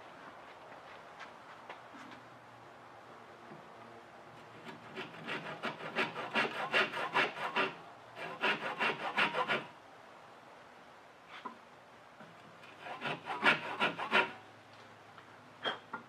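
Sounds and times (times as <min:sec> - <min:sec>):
handsaw cutting wood: 0:04.5 - 0:09.7, 0:12.6 - 0:14.4.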